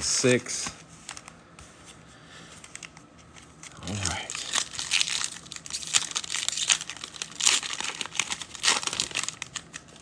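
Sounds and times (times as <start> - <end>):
wrapper crinkling and tearing: 2.7 - 10.0.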